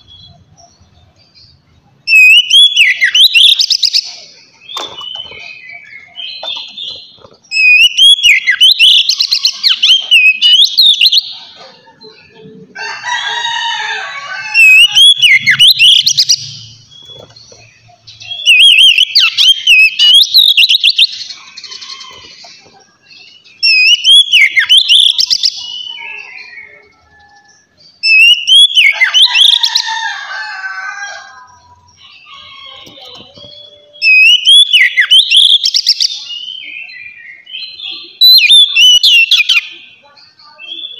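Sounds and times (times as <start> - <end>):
bird whistled song: 2.1 - 11.4, 14.6 - 22.5, 23.2 - 29.6, 31.8 - 40.9.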